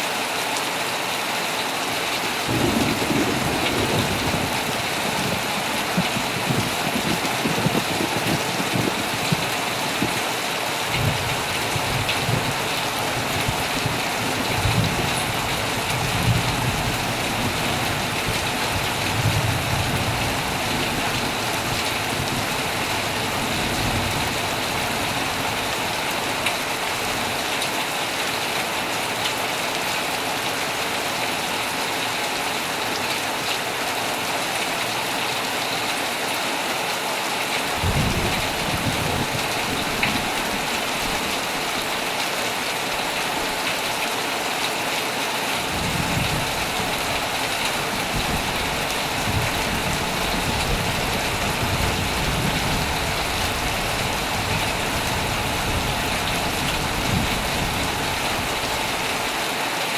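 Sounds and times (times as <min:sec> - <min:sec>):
heavy rain on a tent: 0:00.0 - 0:59.9
thunder rumbles: 0:02.2 - 0:27.4, 0:37.7 - 0:42.2, 0:45.6 - 0:59.3.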